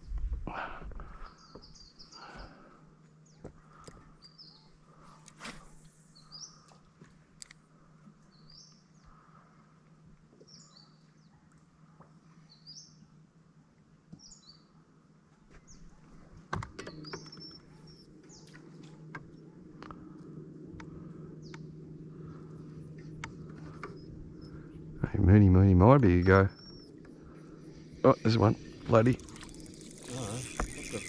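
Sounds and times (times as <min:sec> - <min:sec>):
steady low hum: 0:00.0 - 0:31.0
birds chirping: 0:01.0 - 0:05.2, 0:06.0 - 0:07.0, 0:08.2 - 0:09.6, 0:16.8 - 0:31.0.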